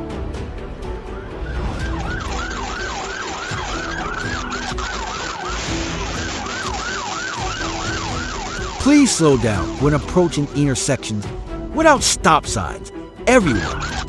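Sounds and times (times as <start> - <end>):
siren yelping: 1.2 - 10.6, 13.4 - 14.0.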